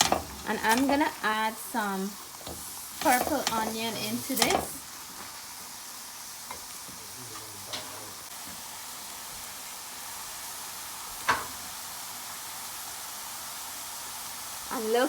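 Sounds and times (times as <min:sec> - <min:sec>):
utensil clicking against pan: 0:00.0 - 0:01.0, 0:02.4 - 0:04.8
vegetables sizzling in a frying pan: 0:00.0 - 0:15.0.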